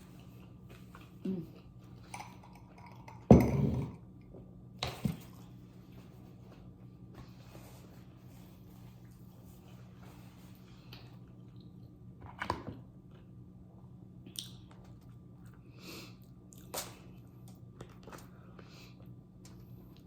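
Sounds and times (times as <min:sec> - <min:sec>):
chewing with crunchy bites: 0:14.2 - 0:20.0.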